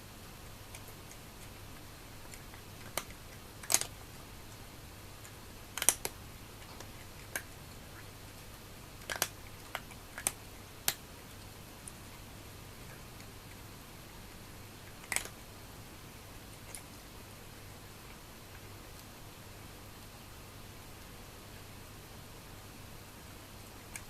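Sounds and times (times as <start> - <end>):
faint steady hum: 0.0 - 24.0
cats eating dry food: 0.1 - 20.2.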